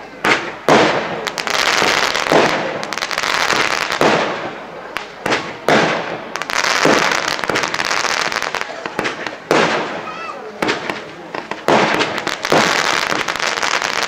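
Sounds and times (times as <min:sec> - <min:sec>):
firework crackling: 0:00.0 - 0:14.0.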